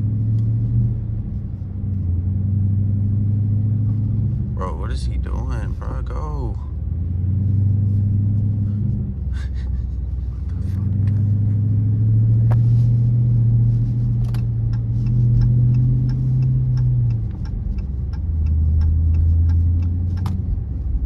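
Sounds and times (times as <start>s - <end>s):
car engine rumbling: 0.0s - 21.0s
light ticking: 14.3s - 20.4s.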